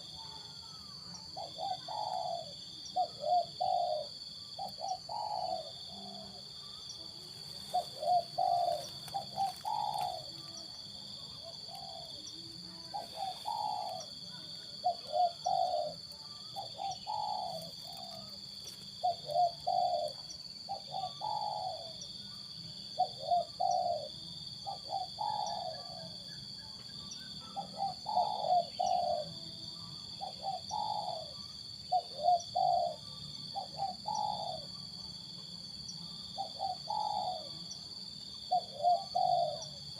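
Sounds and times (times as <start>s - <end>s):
dove cooing: 0.0s - 22.0s, 23.0s - 26.3s, 27.4s - 29.6s, 30.2s - 34.8s, 36.3s - 37.6s, 38.4s - 39.9s.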